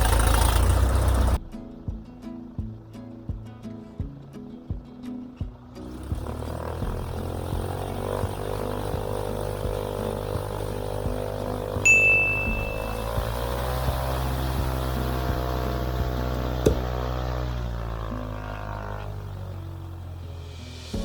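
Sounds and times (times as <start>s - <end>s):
piston engine running: 0.0s - 1.4s, 5.8s - 21.0s
high electronic ding: 11.9s - 13.5s
sharp click: 16.6s - 16.9s.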